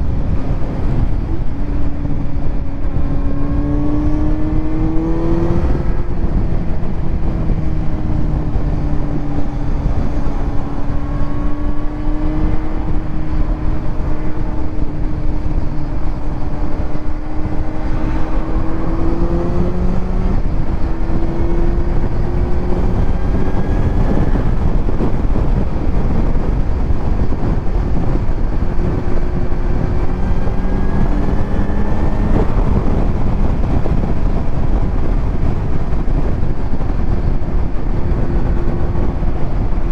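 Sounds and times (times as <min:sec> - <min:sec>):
motorcycle engine revving: 0:00.0 - 0:39.9
wind noise: 0:00.0 - 0:39.9.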